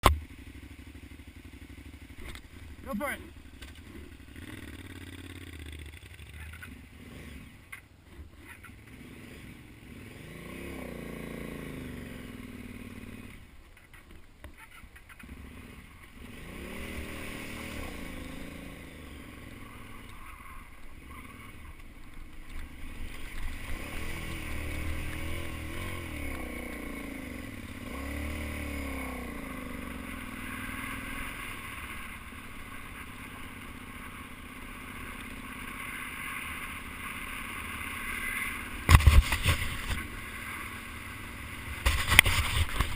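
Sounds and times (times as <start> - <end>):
vehicle engine revving: 1.5 - 7.6, 8.7 - 13.5, 15.2 - 21.7, 22.5 - 33.5.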